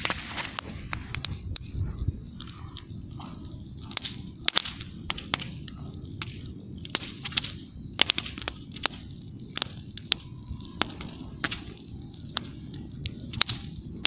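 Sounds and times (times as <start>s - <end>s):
campfire pops and snaps: 0.0s - 14.0s
low rumble of burning fire: 0.0s - 14.0s.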